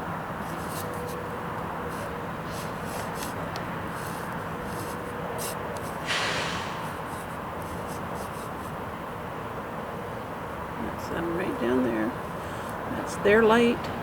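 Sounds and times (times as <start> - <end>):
distant trucks rumbling: 0.0 - 14.0
short sudden hiss: 6.0 - 7.2.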